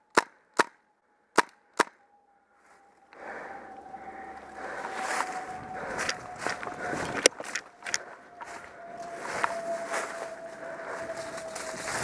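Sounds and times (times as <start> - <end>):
rustle of movement: 4.4 - 12.0.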